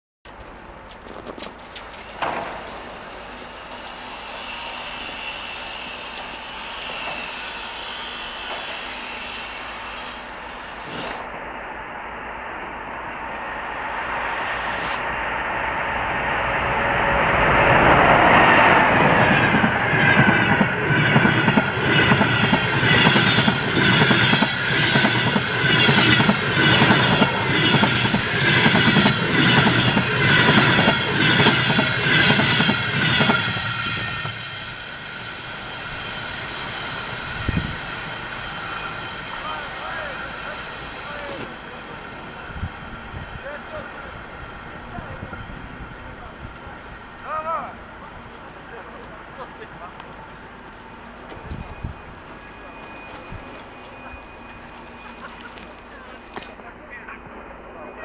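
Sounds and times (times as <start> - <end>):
passing train rumble and hiss: 0.3 - 58.0
high whine: 2.2 - 44.1.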